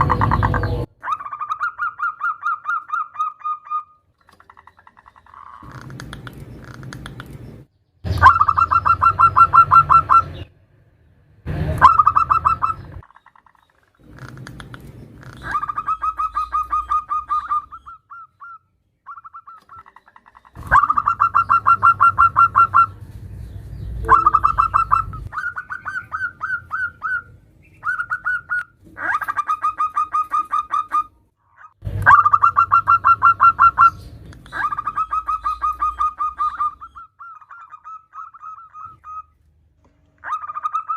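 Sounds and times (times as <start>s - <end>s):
dove fast staccato cooing: 19.2s - 23.0s, 32.0s - 36.8s.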